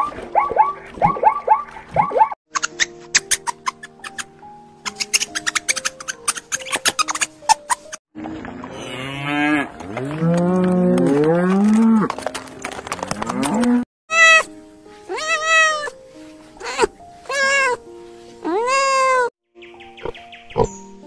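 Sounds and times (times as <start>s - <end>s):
kitten meowing: 14.1s - 14.5s, 15.1s - 16.0s, 16.6s - 17.8s, 18.4s - 19.3s.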